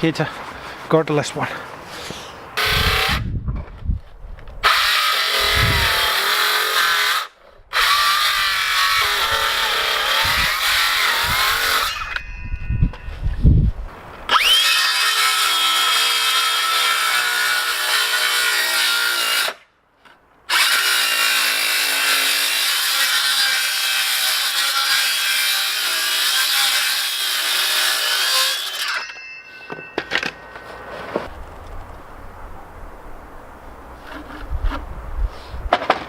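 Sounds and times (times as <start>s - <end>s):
power tool cutting wood: 2.6s - 3.2s, 4.6s - 12.2s, 14.3s - 19.6s, 20.5s - 29.2s.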